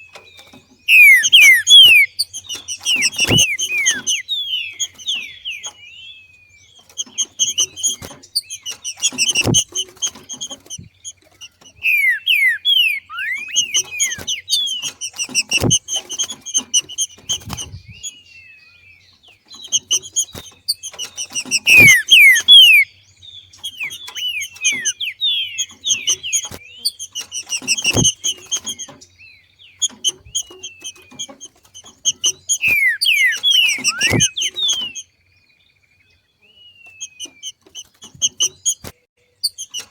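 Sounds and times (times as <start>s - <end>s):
bird chattering and whistling: 0.0s - 35.2s, 36.4s - 39.9s.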